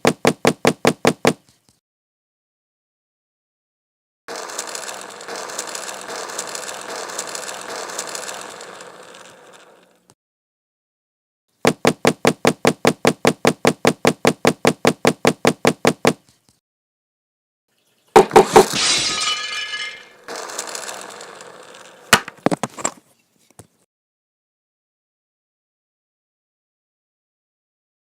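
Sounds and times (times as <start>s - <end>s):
fast run of clicks: 4.3s - 10.2s, 20.2s - 22.4s
knocks: 18.2s - 18.8s
glass breaking crash: 18.2s - 20.3s.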